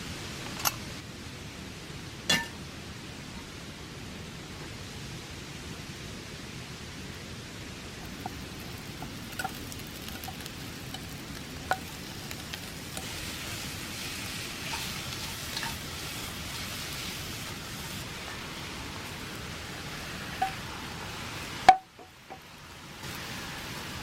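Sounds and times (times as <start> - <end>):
food sizzling in a pan: 8.0 - 24.0.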